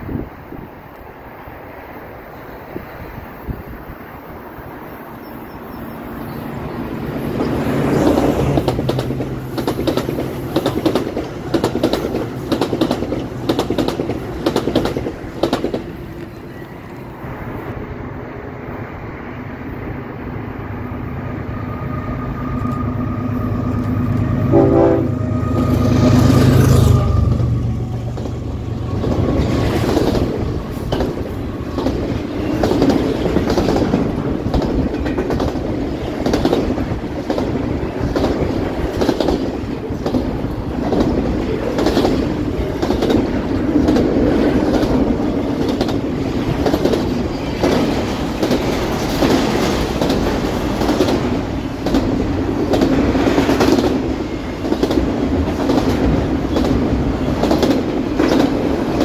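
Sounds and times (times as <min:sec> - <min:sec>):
diesel locomotive engine rumble: 0:02.7 - 0:59.0
train horn: 0:21.4 - 0:29.6.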